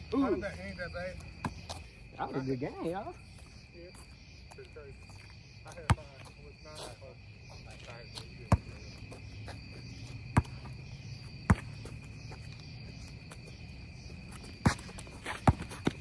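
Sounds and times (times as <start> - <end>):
crickets buzzing: 0.0 - 16.0
basketball bouncing: 5.8 - 6.1, 8.5 - 9.2, 10.3 - 10.8, 11.4 - 12.4, 14.5 - 16.0.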